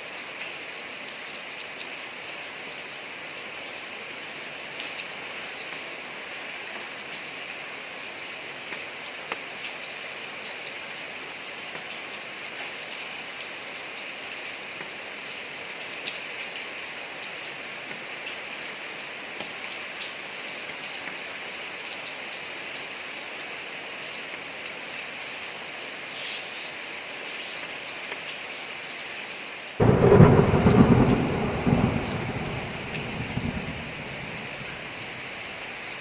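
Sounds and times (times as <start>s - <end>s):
rain falling on a street: 0.0s - 36.0s
thunder clap and rumble: 29.8s - 35.4s.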